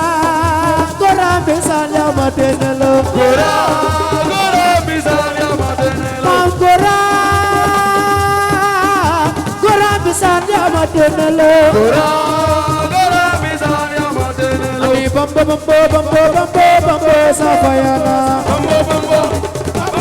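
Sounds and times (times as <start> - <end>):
steady drum beat: 0.0 - 20.0
person singing melodic line: 2.6 - 8.3, 16.8 - 20.0.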